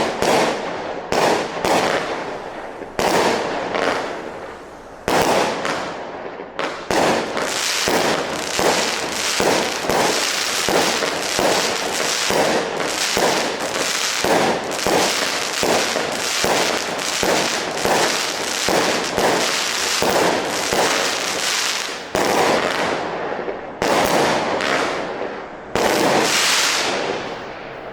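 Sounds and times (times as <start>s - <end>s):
firework shots launching and bursting: 0.0s - 5.9s, 6.6s - 23.0s
firework crackle and hiss: 0.0s - 27.9s.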